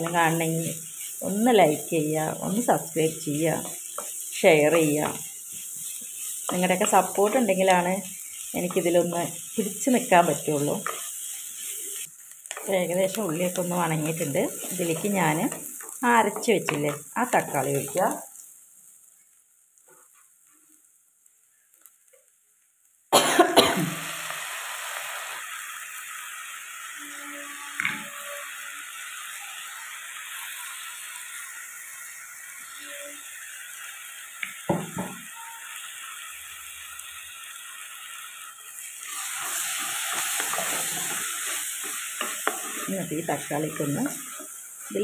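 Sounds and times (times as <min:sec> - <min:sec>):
tomato paste sizzling in oil: 0:00.0 - 0:45.0
wooden spatula stirring: 0:02.5 - 0:18.0, 0:39.3 - 0:44.6.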